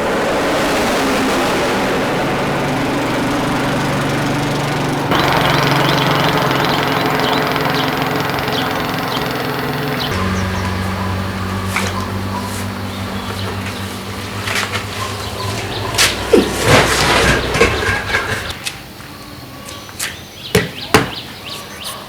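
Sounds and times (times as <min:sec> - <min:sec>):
engine running: 0:00.0 - 0:18.6.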